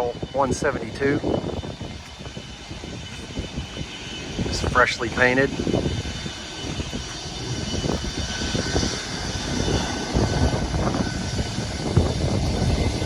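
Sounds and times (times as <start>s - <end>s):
propeller airplane engine running: 0.0s - 13.0s.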